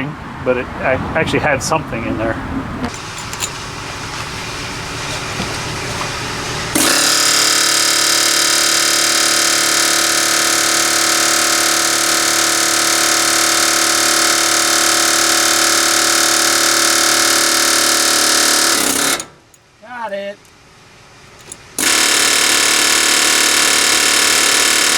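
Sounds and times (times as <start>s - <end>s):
pneumatic air hammer buzzing: 2.9s - 19.6s, 21.4s - 24.9s.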